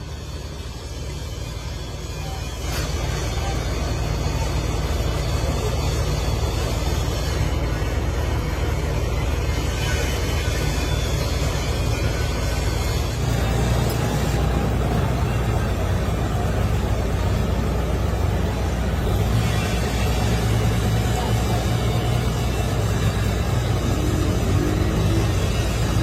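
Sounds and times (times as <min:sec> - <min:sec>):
machinery humming: 0:00.0 - 0:26.0.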